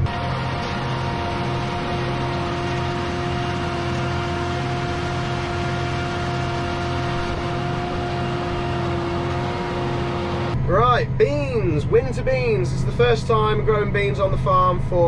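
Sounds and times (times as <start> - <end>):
steady whine: 0.0 - 15.0
tractor diesel engine hum: 0.0 - 15.0.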